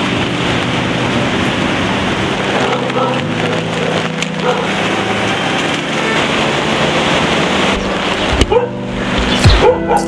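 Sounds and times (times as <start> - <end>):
heavy rain: 0.0 - 10.0
rushing river water: 0.0 - 10.0.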